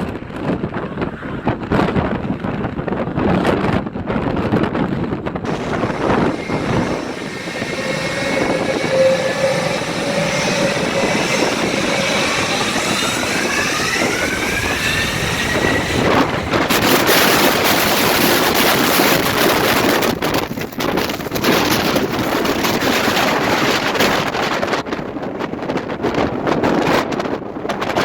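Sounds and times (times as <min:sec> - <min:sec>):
jet blast rushing: 0:05.5 - 0:21.3
jet engines whining: 0:05.5 - 0:22.0.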